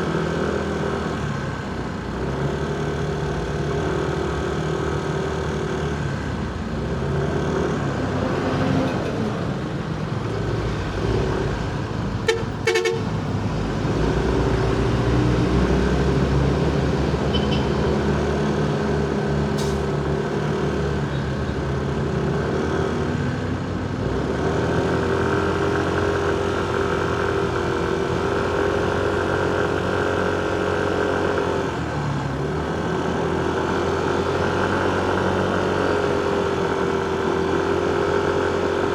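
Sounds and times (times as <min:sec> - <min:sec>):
traffic engines running: 0:00.0 - 0:38.9
car horn toots: 0:12.3 - 0:13.1, 0:17.3 - 0:17.8.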